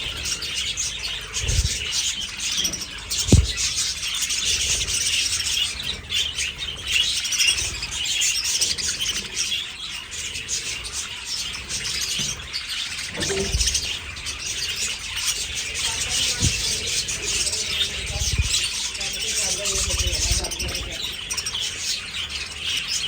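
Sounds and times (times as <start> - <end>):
budgerigars chirping and chattering: 0.0 - 23.0
dull low knocks: 3.3 - 3.7.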